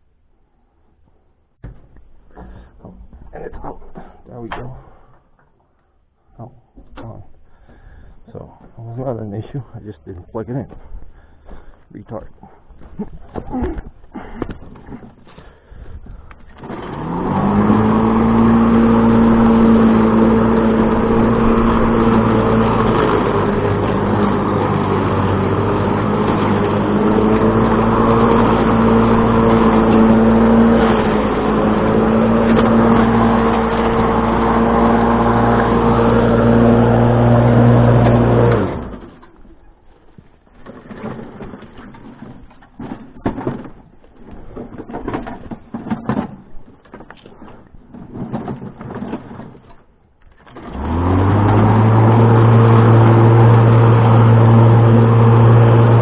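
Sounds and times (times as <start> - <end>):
electric string trimmer motor: 16.6 - 39.1, 50.4 - 56.0.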